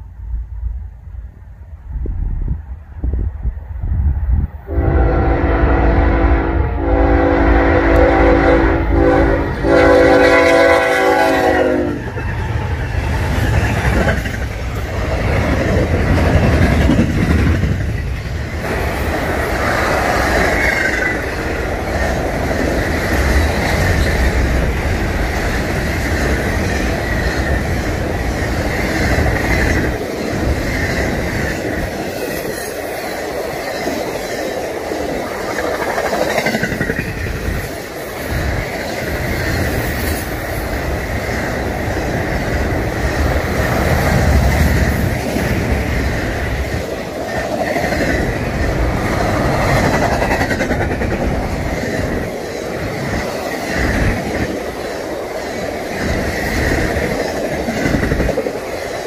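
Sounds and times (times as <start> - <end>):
freight train rumbling past: 0.0 - 59.0
locomotive air horn: 4.7 - 12.0.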